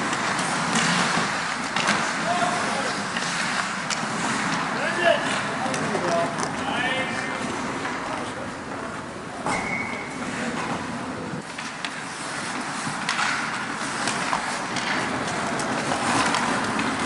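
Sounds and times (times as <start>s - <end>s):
whistle-like tone: 9.5s - 10.1s.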